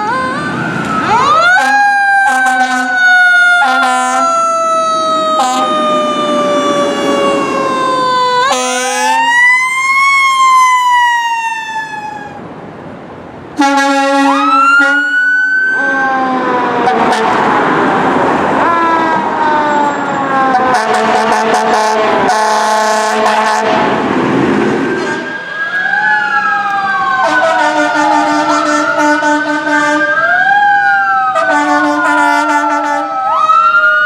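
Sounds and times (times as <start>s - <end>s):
fire truck sirens wailing: 0.0s - 34.0s
air horn blasts: 1.6s - 3.0s, 3.6s - 4.4s, 5.4s - 5.8s, 8.5s - 9.3s, 13.6s - 15.1s, 16.9s - 17.4s, 20.5s - 23.9s, 27.2s - 30.2s, 31.4s - 33.1s.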